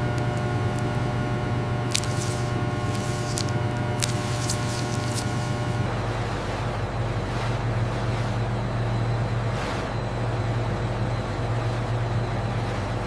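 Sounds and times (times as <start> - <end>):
factory machinery hum: 0.0 - 13.0.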